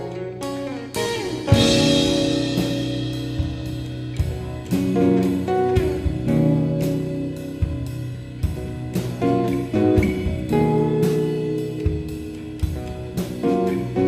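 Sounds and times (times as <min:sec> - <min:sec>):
guitars playing ringing chords: 0:00.0 - 0:14.0
cymbal crash: 0:01.0 - 0:06.4.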